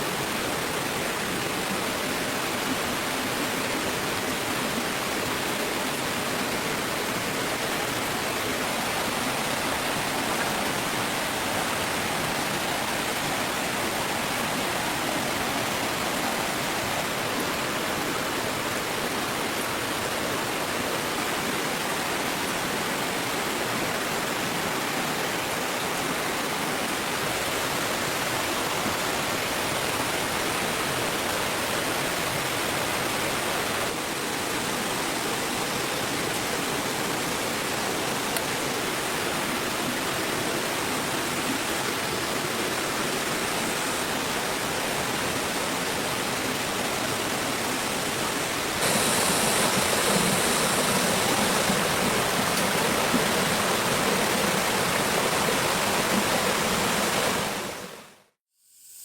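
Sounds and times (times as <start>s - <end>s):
steady rushing noise: 48.8s - 58.0s.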